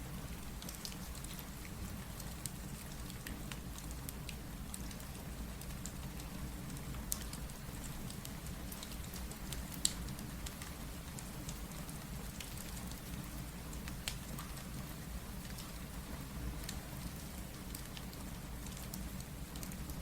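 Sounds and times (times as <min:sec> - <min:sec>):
steady rain: 0:00.0 - 0:20.0
wood fire crackling and popping: 0:05.6 - 0:11.8, 0:13.6 - 0:14.7.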